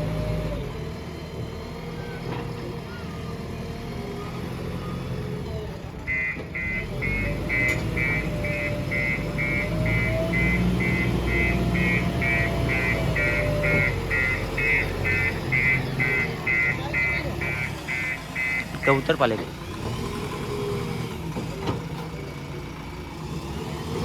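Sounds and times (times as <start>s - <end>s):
diesel engine of heavy machinery: 0.0s - 24.0s
reversing alarm beeping: 6.1s - 19.2s.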